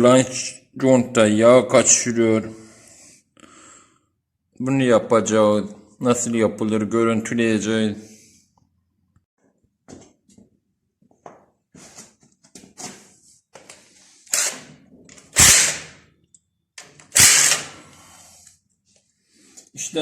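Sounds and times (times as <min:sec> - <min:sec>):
tools clicking and clanking: 0:14.3 - 0:17.8.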